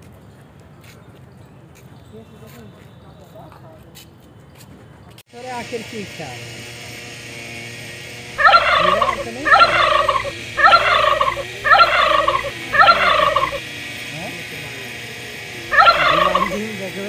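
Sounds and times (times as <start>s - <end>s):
bird harsh calls: 8.4s - 13.6s, 15.7s - 16.9s.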